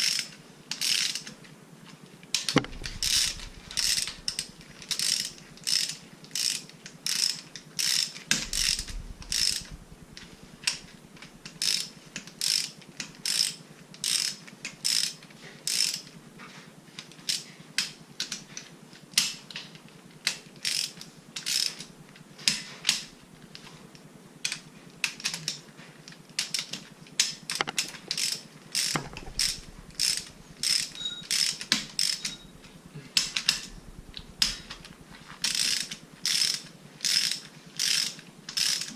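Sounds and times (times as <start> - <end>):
ratchet wrench clicking: 0.0 - 1.3, 2.5 - 16.1, 20.2 - 21.9, 26.4 - 32.6, 33.2 - 38.9.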